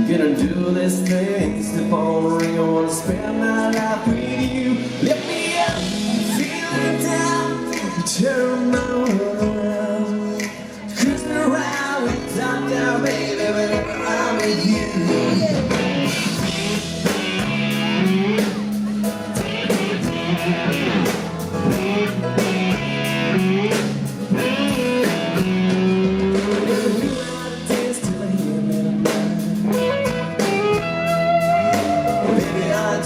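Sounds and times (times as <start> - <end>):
bass guitar: 0.0 - 33.0
drum kit steady beat: 0.0 - 33.0
electric guitar bending notes: 12.1 - 33.0.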